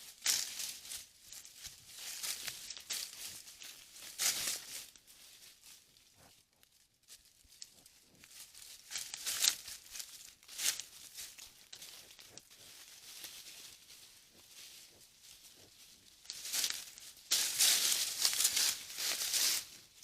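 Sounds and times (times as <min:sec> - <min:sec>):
rustling in dry leaf litter: 0:00.0 - 0:20.0.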